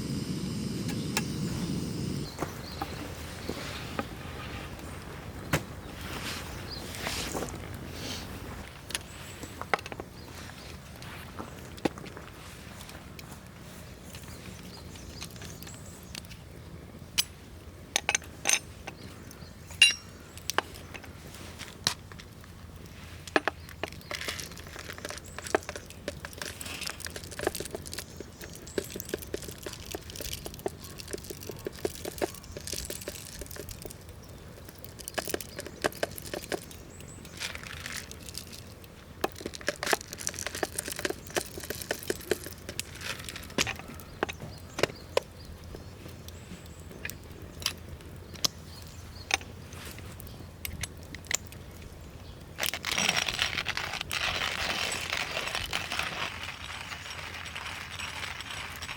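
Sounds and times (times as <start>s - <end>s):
loud hiss: 0.0s - 3.2s
campfire crackling and popping: 0.0s - 5.8s, 10.9s - 58.9s.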